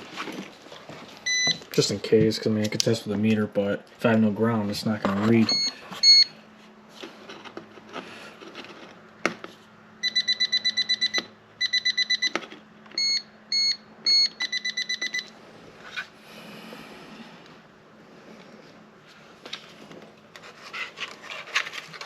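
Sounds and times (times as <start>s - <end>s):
voltage tester beeping: 1.3s - 1.6s, 5.5s - 6.3s, 10.0s - 12.4s, 13.0s - 15.3s.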